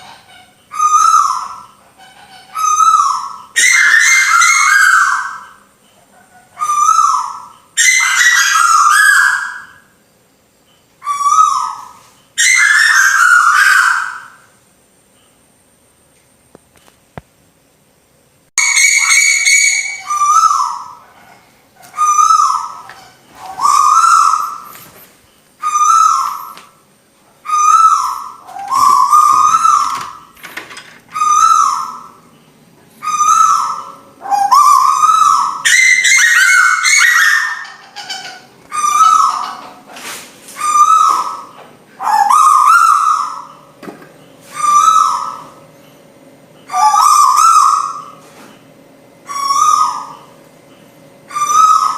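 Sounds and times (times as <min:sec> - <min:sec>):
bird whistled calls: 0:00.0 - 0:05.7, 0:06.6 - 0:10.0, 0:11.0 - 0:14.6, 0:18.6 - 0:21.2, 0:21.8 - 0:25.0, 0:25.6 - 0:26.7, 0:27.4 - 0:30.4, 0:31.1 - 0:32.4, 0:33.0 - 0:39.6, 0:40.6 - 0:43.7, 0:44.4 - 0:45.6, 0:46.6 - 0:48.2, 0:49.3 - 0:50.4, 0:51.3 - 0:51.9.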